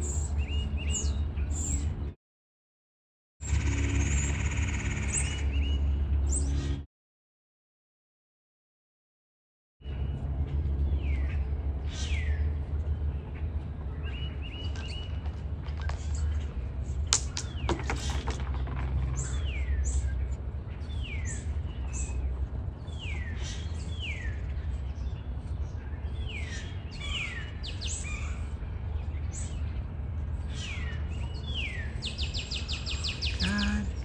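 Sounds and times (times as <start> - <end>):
birds chirping: 9.9 - 34.0.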